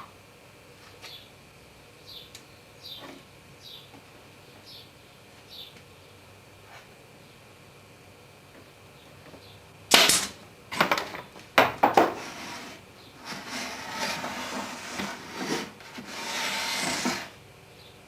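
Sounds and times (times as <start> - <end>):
hand saw cutting board: 12.1 - 17.4.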